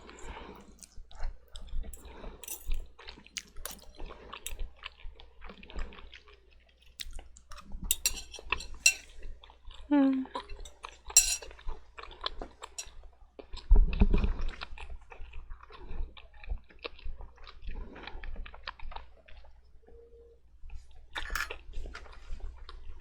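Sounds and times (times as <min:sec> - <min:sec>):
wet chewing of noodles: 0:00.0 - 0:19.7.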